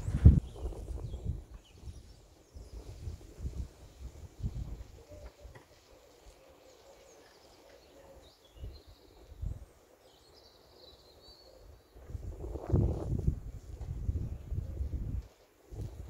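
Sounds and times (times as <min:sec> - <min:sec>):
wind buffeting microphone: 0:00.0 - 0:05.6, 0:11.9 - 0:16.0
bird singing faintly: 0:03.9 - 0:12.6.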